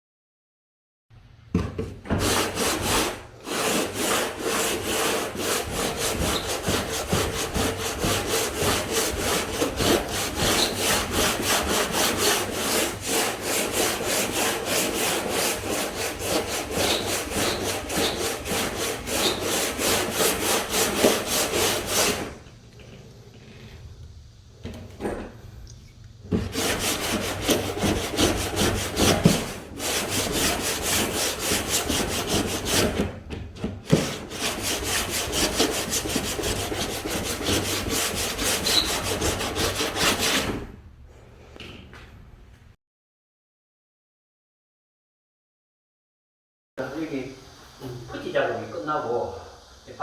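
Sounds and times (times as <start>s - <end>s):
hand tool stroking wood: 2.1s - 22.4s, 26.3s - 40.6s.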